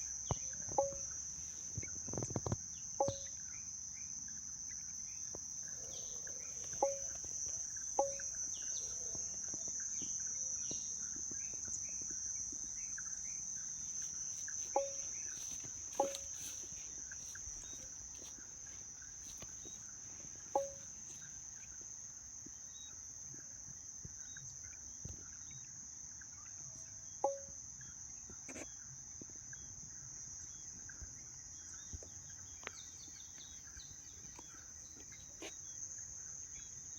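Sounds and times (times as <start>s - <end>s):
insects droning: 0.0s - 36.9s.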